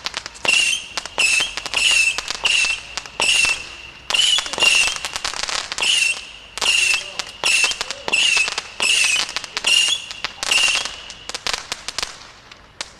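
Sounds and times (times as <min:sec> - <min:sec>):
firework whistles and crackles: 0:00.0 - 0:12.9.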